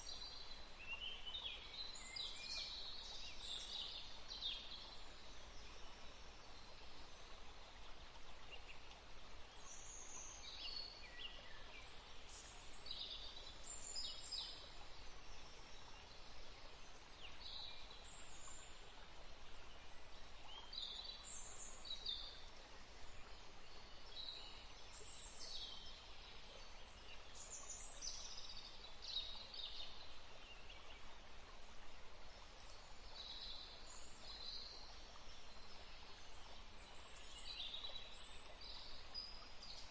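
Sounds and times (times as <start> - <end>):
songbirds chirping: 0.0 - 39.9
steady background hiss: 0.0 - 39.9.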